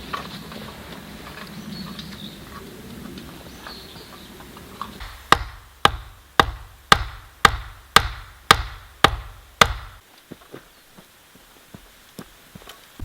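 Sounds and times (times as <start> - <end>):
hand tool striking wood: 5.0 - 10.0.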